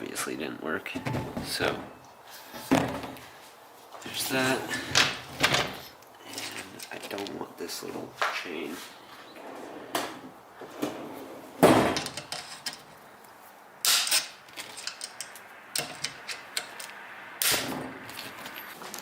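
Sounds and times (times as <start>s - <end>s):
tools knocking and clanking: 0.9s - 2.0s, 11.6s - 12.9s, 13.9s - 17.9s.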